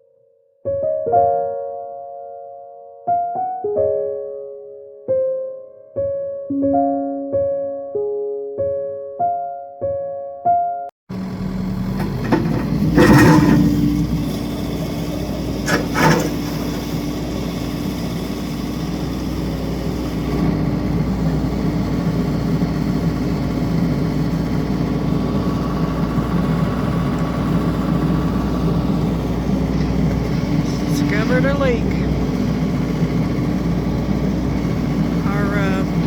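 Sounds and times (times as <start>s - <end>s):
engine running: 11.1s - 36.0s.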